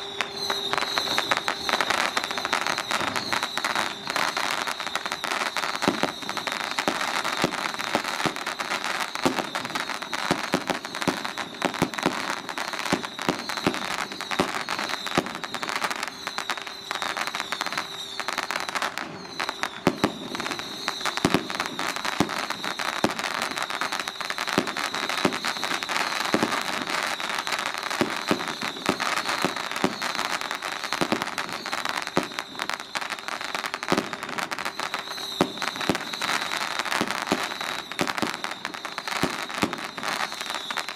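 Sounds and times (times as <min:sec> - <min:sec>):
firecrackers crackling: 0:00.0 - 0:40.9.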